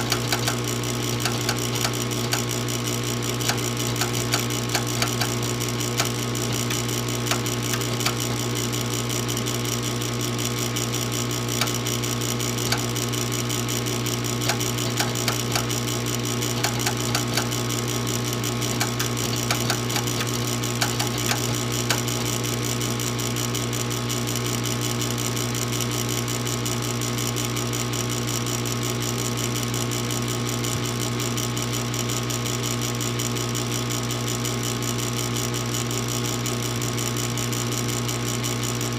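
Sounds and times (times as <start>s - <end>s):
irregular clicks and ticks: 0.0s - 2.6s, 3.3s - 8.6s, 11.5s - 13.2s, 14.4s - 17.8s, 18.4s - 22.4s
furnace motor humming: 0.0s - 38.9s.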